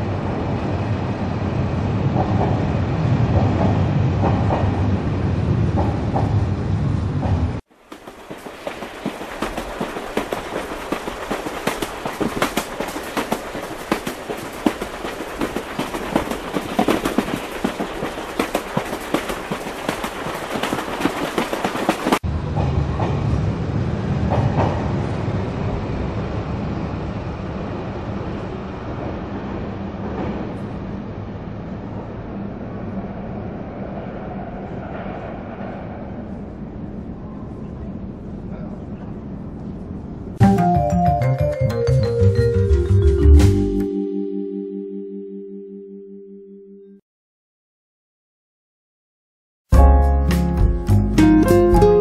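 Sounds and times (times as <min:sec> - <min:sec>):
train deep steady rumble: 0:00.0 - 0:40.4
train clatter on rails: 0:00.0 - 0:40.8.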